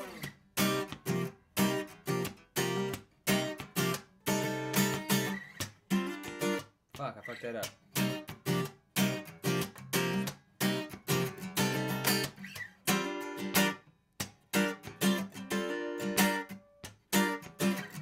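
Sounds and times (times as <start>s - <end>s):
choppy rhythmic guitar strumming: 0.0s - 18.0s.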